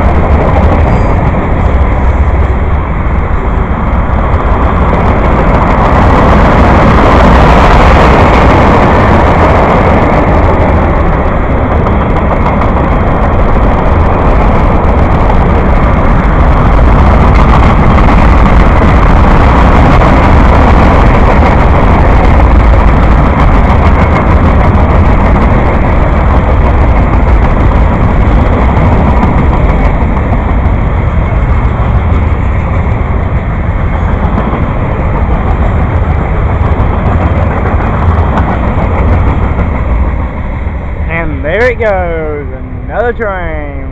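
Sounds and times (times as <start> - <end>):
train rumbling on rails: 0.0 - 43.9.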